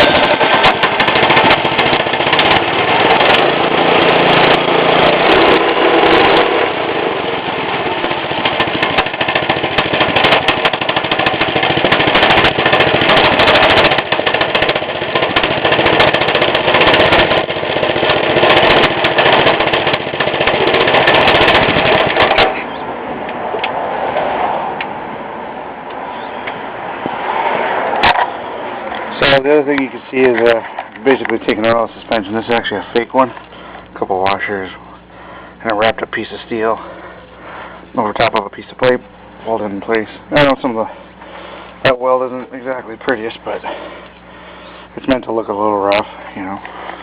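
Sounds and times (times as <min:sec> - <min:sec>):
mini bike engine running: 0:00.0 - 0:22.8, 0:42.4 - 0:47.0.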